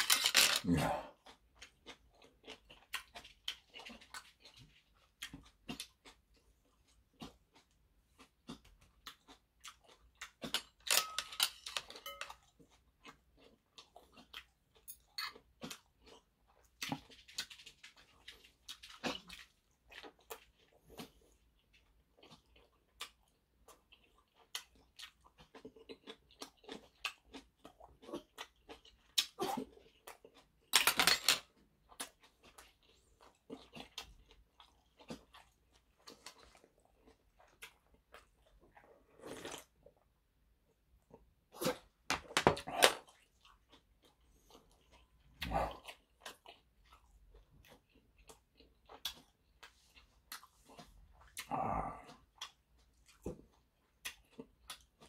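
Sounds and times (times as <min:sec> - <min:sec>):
person chewing with wet clicks: 0:01.1 - 0:30.7, 0:31.4 - 0:42.0, 0:42.6 - 0:55.0.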